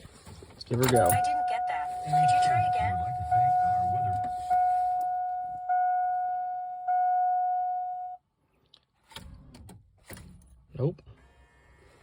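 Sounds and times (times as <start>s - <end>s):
electronic warning chime: 0.8s - 8.2s.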